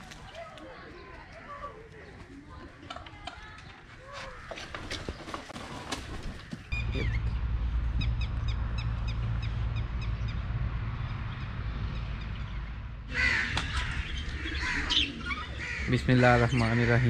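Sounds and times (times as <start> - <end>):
birds cawing and chattering: 0.0 - 17.0
low steady hum: 6.6 - 16.1.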